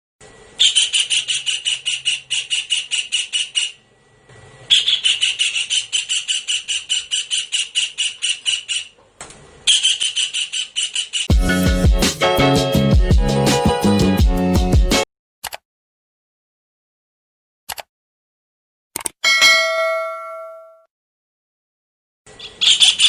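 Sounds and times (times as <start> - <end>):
kingfisher calling sharp notes: 0.6 - 3.8, 4.7 - 9.0, 9.7 - 11.3, 22.4 - 23.0.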